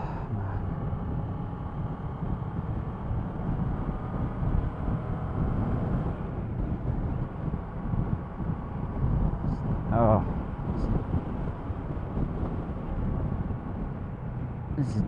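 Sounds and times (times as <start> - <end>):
wind buffeting microphone: 0.0 - 15.0
motorcycle engine running: 0.4 - 15.0.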